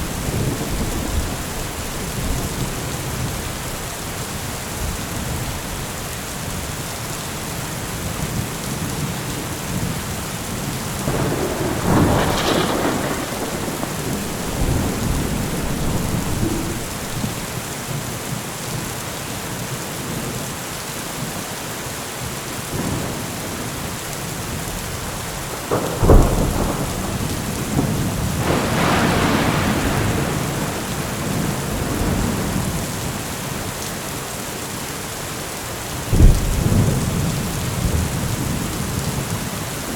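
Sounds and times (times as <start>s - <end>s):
rolling thunder rumble: 0.0s - 3.9s, 9.6s - 17.9s, 24.5s - 33.5s, 36.1s - 39.6s
heavy rain: 0.0s - 39.9s
sharp thunderclap: 11.0s - 17.6s, 25.4s - 32.9s, 36.1s - 38.6s.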